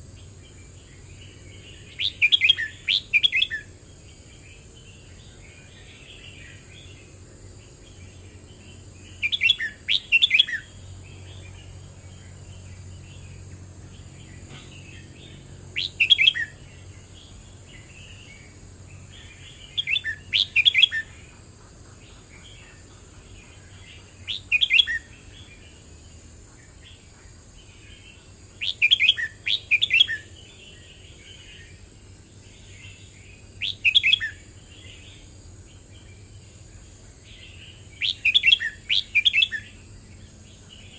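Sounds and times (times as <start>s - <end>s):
bird warbling song: 0.1s - 40.9s
soft bird chattering calls: 1.8s - 3.7s, 14.3s - 16.9s, 19.2s - 25.5s.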